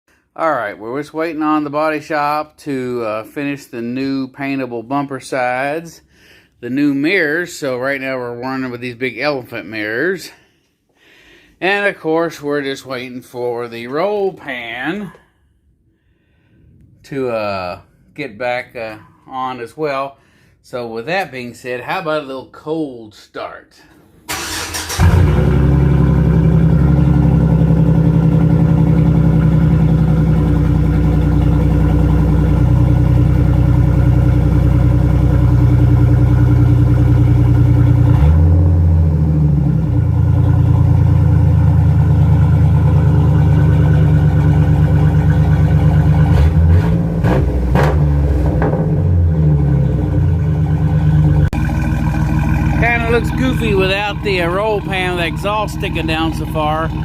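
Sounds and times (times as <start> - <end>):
truck engine idling: 24.3 - 46.9, 49.1 - 57.0.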